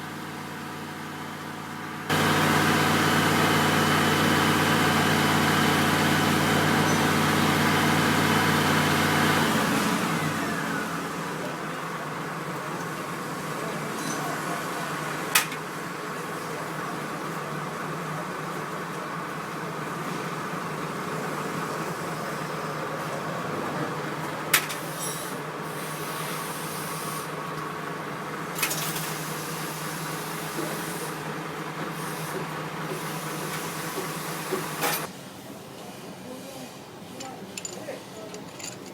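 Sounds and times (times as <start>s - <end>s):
machine hum with hiss: 2.0s - 11.4s, 24.6s - 27.5s, 28.5s - 35.4s.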